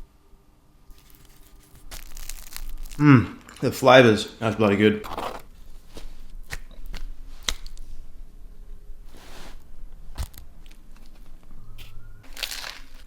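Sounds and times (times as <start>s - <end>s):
crunching crusty sandwich: 0.9s - 3.9s, 5.0s - 8.0s, 9.0s - 13.0s.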